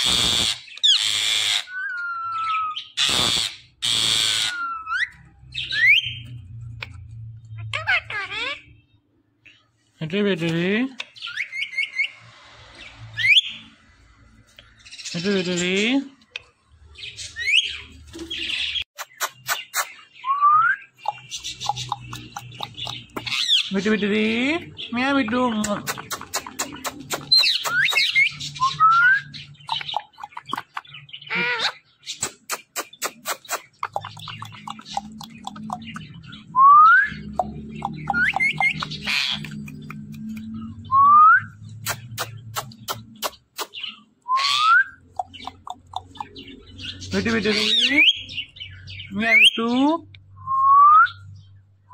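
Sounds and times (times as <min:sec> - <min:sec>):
parrot low chirps: 0:00.0 - 0:08.8, 0:25.9 - 0:48.3
parrot clicks and chattering: 0:19.0 - 0:20.0, 0:21.0 - 0:23.6, 0:25.5 - 0:28.2, 0:29.6 - 0:31.0, 0:32.2 - 0:36.3, 0:37.2 - 0:40.6, 0:41.8 - 0:43.8, 0:45.0 - 0:46.6.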